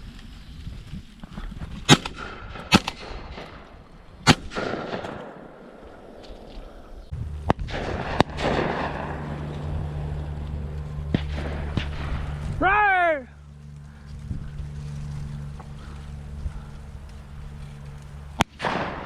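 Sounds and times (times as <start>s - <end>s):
steady low hum: 1.3s - 19.0s
shotgun shots: 1.9s - 6.4s, 7.6s - 9.4s, 18.4s - 19.0s.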